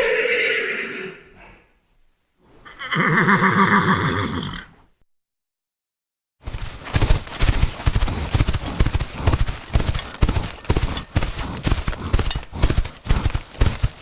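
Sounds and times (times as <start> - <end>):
horse hooves clopping: 6.4 - 14.0.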